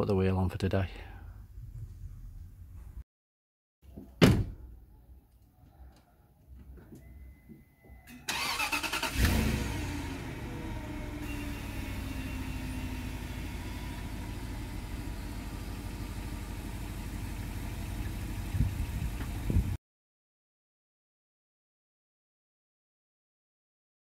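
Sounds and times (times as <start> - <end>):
engine starter cranking: 8.2 - 9.7
car engine revving and idling: 8.9 - 19.7.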